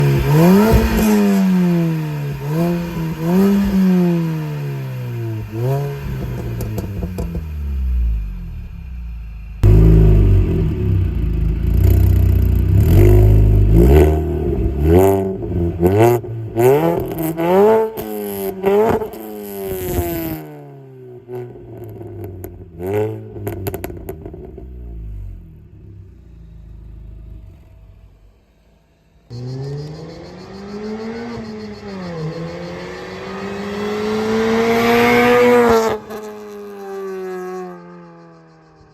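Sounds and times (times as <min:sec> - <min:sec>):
car accelerating hard: 0:00.0 - 0:08.4, 0:29.2 - 0:38.9
exhaust crackles: 0:00.0 - 0:20.4, 0:21.2 - 0:38.9
car engine revving: 0:00.0 - 0:38.9.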